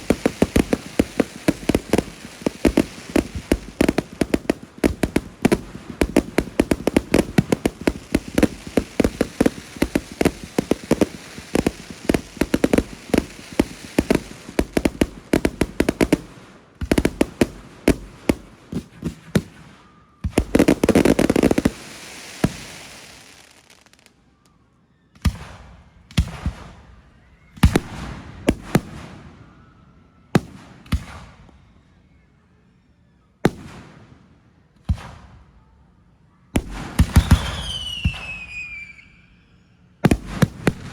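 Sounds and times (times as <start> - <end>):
fireworks bangs: 0.0 - 24.1, 36.6 - 39.0, 40.0 - 40.9.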